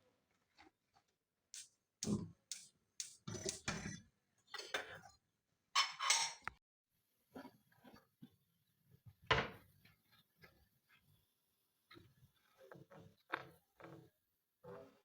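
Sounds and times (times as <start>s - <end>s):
dishes and cutlery clinking: 5.8s - 6.6s.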